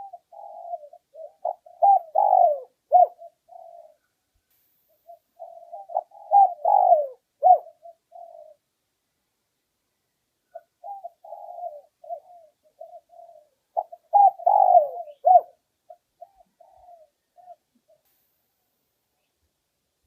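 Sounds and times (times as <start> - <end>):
dove cooing: 0.0 - 4.1, 5.0 - 8.7, 10.5 - 18.0.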